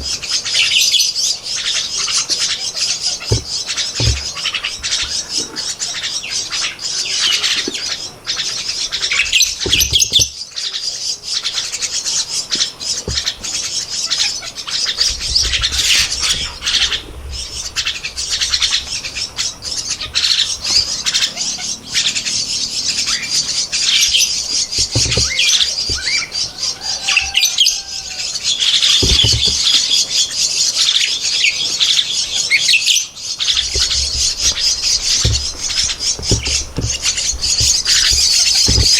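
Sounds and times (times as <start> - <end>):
nestlings begging calls: 0.0 - 38.9
low thumps: 3.2 - 5.6, 14.9 - 20.7, 24.2 - 26.6, 28.9 - 29.9, 33.3 - 38.9.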